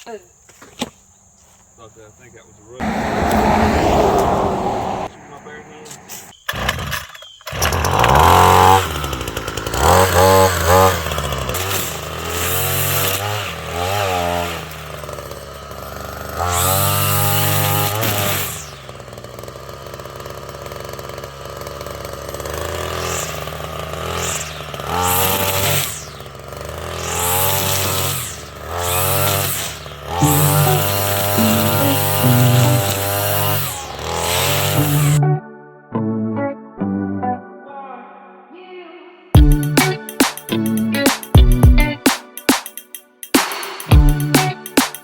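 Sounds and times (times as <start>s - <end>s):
chainsaw engine revving: 2.8s - 35.2s.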